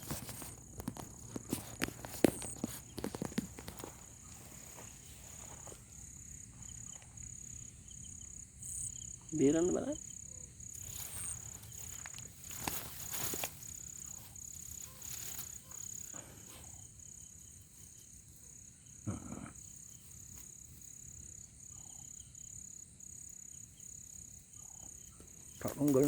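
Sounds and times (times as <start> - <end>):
rustling and scraping: 0.0 - 7.3, 10.8 - 16.8, 25.2 - 26.0
insect chirping: 0.0 - 26.0.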